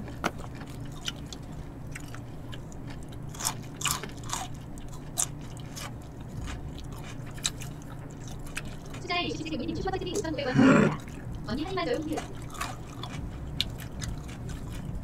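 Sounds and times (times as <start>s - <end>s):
person chewing and biting: 0.0s - 9.0s, 12.2s - 15.0s.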